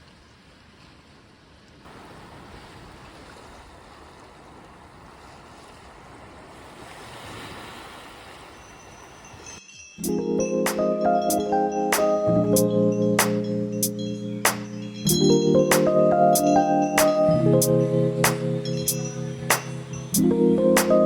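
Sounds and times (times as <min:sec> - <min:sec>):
sea waves washing on shore: 0:01.9 - 0:09.6.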